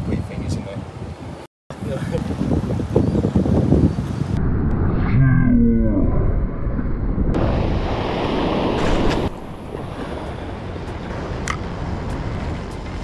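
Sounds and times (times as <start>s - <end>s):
wind buffeting microphone: 0.0s - 5.0s, 7.0s - 13.0s
ocean surf washing over rocks: 7.4s - 11.5s.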